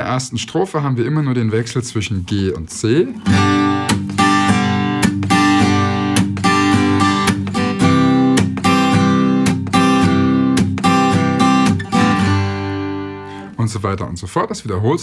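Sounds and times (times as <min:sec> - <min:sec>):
acoustic guitar strumming: 0:03.2 - 0:13.6.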